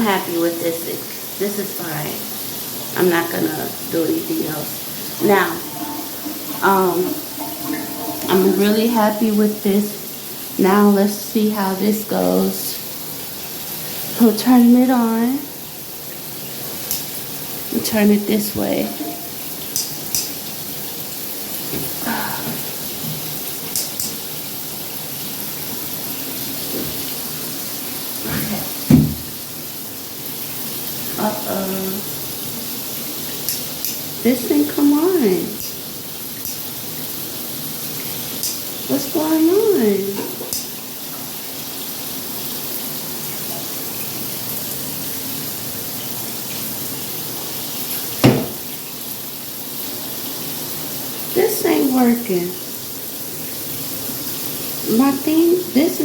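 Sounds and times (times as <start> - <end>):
shower water running: 0.0 - 56.0
water spraying from shower head: 1.2 - 10.8, 16.7 - 24.5.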